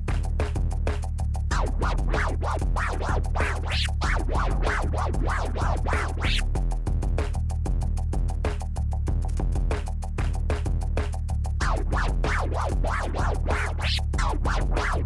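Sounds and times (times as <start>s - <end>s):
turntable record scratching: 1.5s - 6.6s, 11.6s - 15.0s
looping electronic beat: 1.5s - 7.1s, 11.6s - 15.0s.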